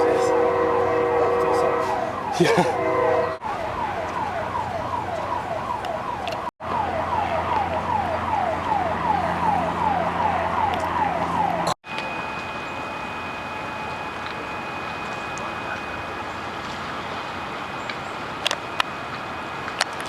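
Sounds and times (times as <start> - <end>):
emergency siren yelping: 0.0 - 20.0
faint high whine: 11.9 - 20.0.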